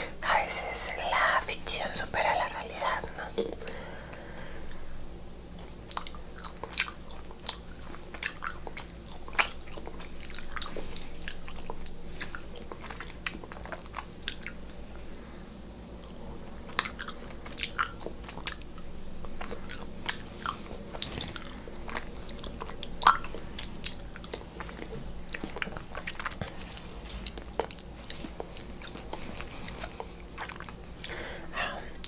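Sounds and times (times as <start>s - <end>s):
faint low hum: 0.0s - 32.0s
person chewing food: 3.1s - 15.2s, 16.0s - 32.0s
mouth clicks and smacks: 5.6s - 14.6s, 16.7s - 31.2s.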